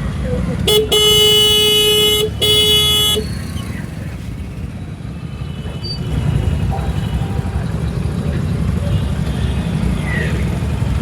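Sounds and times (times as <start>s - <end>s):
traffic rumble: 0.0s - 11.0s
vehicle horn blast: 0.7s - 3.3s.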